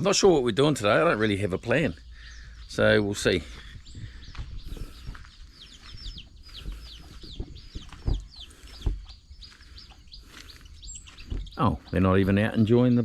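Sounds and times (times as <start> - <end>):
chickens peeping: 0.0 - 13.0
low thumps: 2.6 - 9.9, 10.8 - 12.4.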